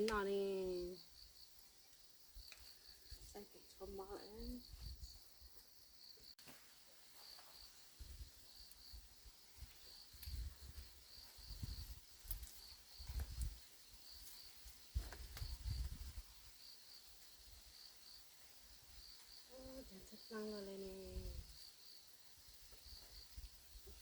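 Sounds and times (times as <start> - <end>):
insects chirping in pulsing trill: 7.0 - 24.0.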